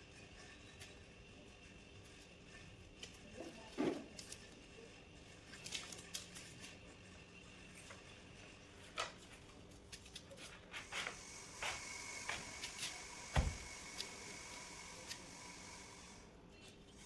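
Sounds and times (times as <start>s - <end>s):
heavy thump: 13.4s - 13.7s.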